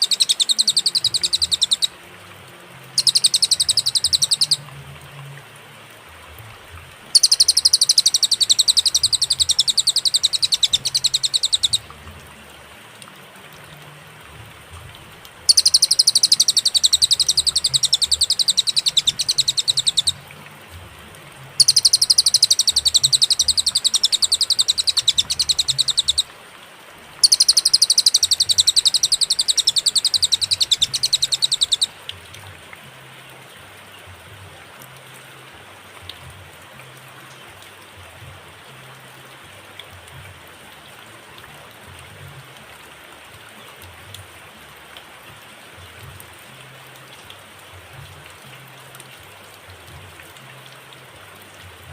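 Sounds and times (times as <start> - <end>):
bird chattering trill: 0.0 - 2.0, 3.0 - 4.6, 7.2 - 11.9, 15.5 - 20.2, 21.6 - 26.3, 27.2 - 32.0
faint steady hiss: 0.0 - 51.9.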